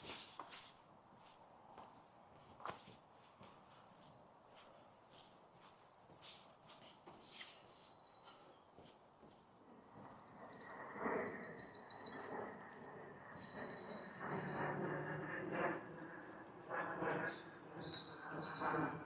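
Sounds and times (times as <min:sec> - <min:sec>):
outdoor background noise: 0:00.0 - 0:19.0
songbirds trilling: 0:09.6 - 0:19.0.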